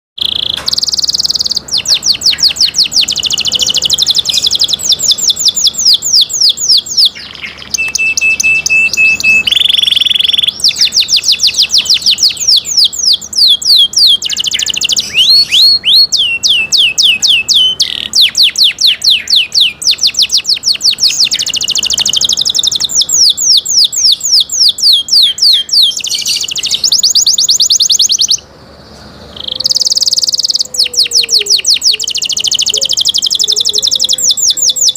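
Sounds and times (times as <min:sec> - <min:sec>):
canary singing trills: 0:00.2 - 0:34.9.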